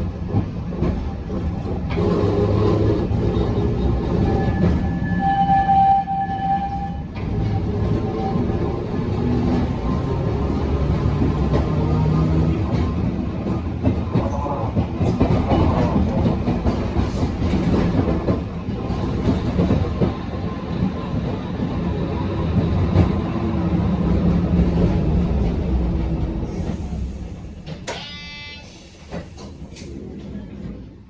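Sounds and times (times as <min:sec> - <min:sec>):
wheels clattering on rails: 0:06.8 - 0:31.0.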